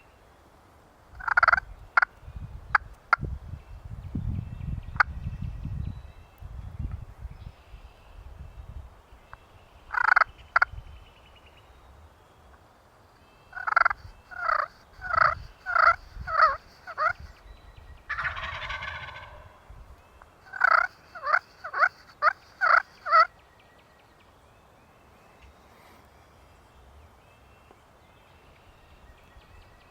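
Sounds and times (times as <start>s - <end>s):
wild turkey yelping: 13.5s - 17.4s, 18.1s - 19.6s, 20.4s - 23.3s.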